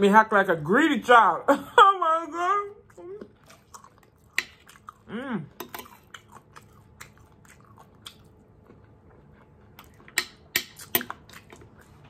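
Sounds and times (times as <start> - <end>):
chewing soft food: 2.8 - 12.0.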